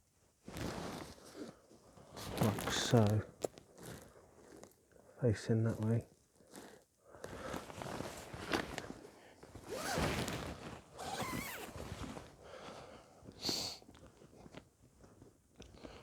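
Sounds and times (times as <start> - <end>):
rustling and handling noises: 5.6 - 12.4.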